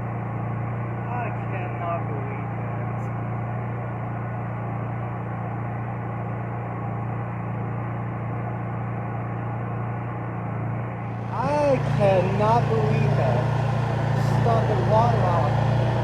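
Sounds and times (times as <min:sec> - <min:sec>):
generator engine humming: 0:10.8 - 0:16.0.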